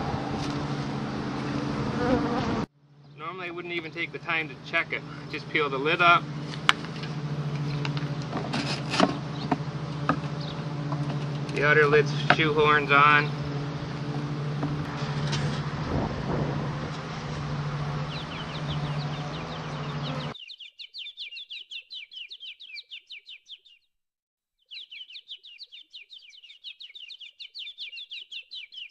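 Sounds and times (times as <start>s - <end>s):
steady low hum: 0.0s - 20.4s
bird rapid high chirping: 18.0s - 23.9s, 24.6s - 28.9s.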